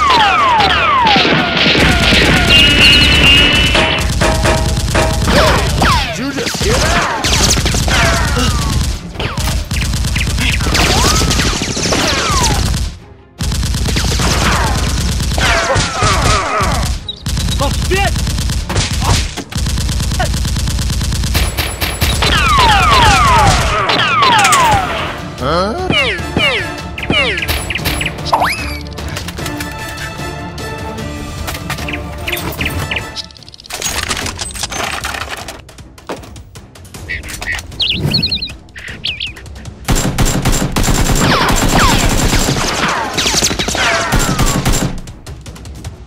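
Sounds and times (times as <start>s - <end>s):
automatic gunfire: 0.6s - 16.5s, 17.2s - 24.7s, 39.9s - 45.2s.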